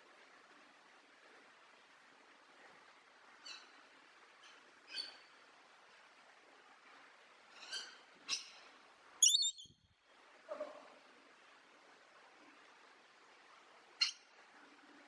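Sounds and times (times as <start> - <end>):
faint steady hiss: 0.0 - 15.0
bird calls: 9.2 - 9.7.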